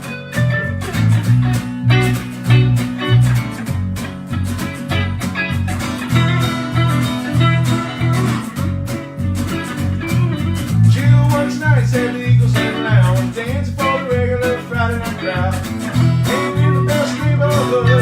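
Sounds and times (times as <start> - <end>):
live band playing: 0.0 - 11.4
bass line: 0.0 - 18.0
guitars: 0.0 - 18.0
steady beat: 0.0 - 18.0.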